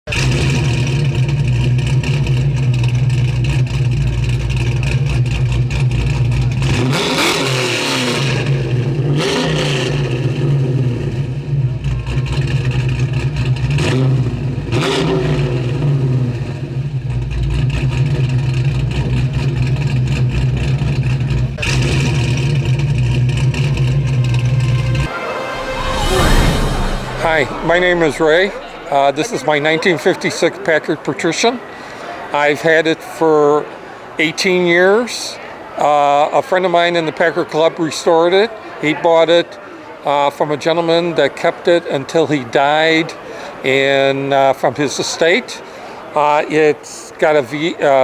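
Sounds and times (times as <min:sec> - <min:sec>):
car engine idling and revving: 0:00.1 - 0:24.7.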